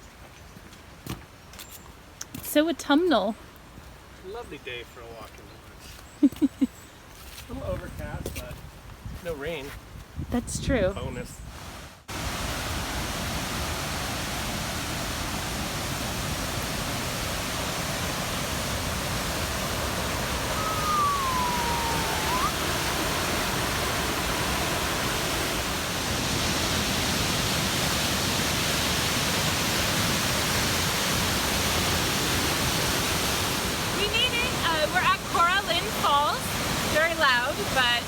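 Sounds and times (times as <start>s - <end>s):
waterfall rushing: 12.1s - 38.0s
whistle-like call: 20.4s - 23.9s.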